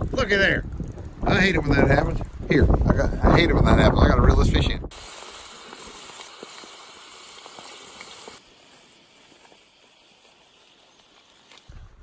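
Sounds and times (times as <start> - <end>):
potatoes sizzling in a wok: 4.9 - 11.7
faint hiss: 4.9 - 12.0.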